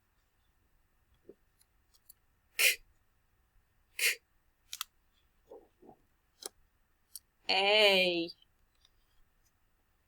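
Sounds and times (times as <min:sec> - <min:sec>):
person breathing in sharp puffs: 0:02.6 - 0:02.8, 0:04.0 - 0:04.2.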